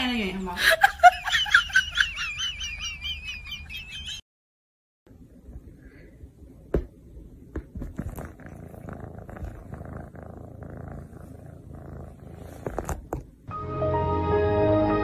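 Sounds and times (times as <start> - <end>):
cat purring: 7.4 - 13.5.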